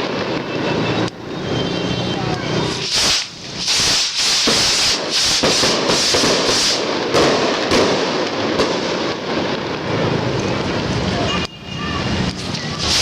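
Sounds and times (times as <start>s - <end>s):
fireworks crackling: 0.0s - 13.0s
loud firework bangs: 2.6s - 11.0s, 12.7s - 13.0s.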